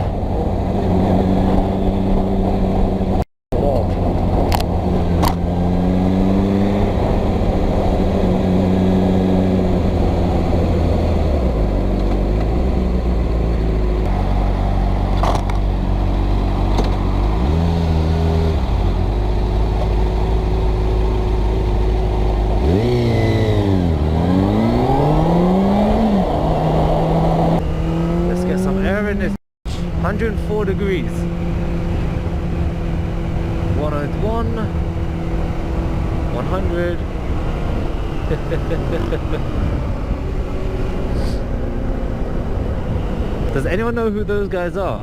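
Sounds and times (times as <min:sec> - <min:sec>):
wind and road noise: 0:00.0 - 0:45.0.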